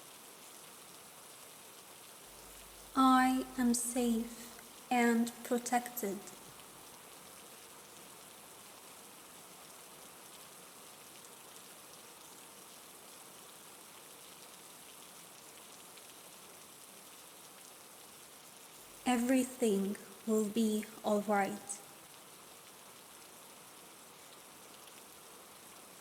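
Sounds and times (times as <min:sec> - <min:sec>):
rain pattering: 0:00.0 - 0:26.0.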